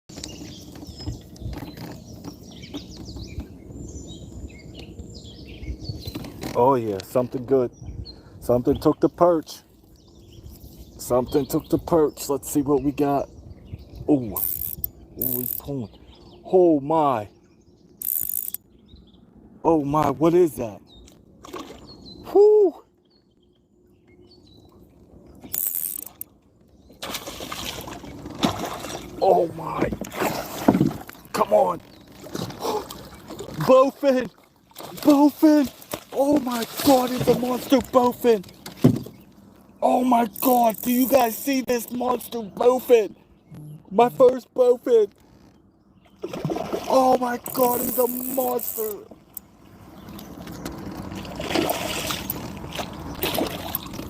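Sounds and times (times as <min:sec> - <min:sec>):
birds chirping: 0:00.1 - 0:54.0
fishing reel clicking and whirring: 0:14.4 - 0:15.7, 0:18.0 - 0:18.6, 0:25.5 - 0:26.2, 0:40.3 - 0:41.5, 0:47.5 - 0:49.0.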